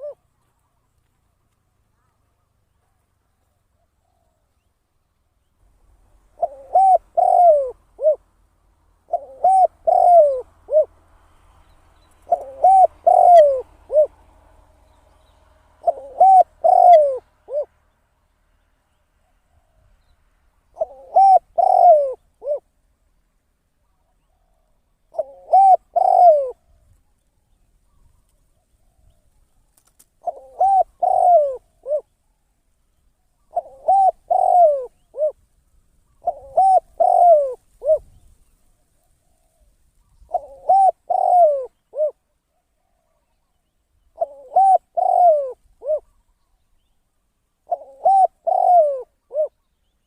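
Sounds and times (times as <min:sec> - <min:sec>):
dove cooing: 0:00.0 - 0:00.2, 0:06.2 - 0:08.3, 0:09.0 - 0:11.1, 0:12.1 - 0:14.3, 0:15.0 - 0:17.7, 0:20.7 - 0:22.7, 0:24.0 - 0:26.9, 0:27.9 - 0:32.1, 0:33.4 - 0:35.4, 0:36.1 - 0:43.4, 0:44.1 - 0:46.3, 0:47.6 - 0:49.7.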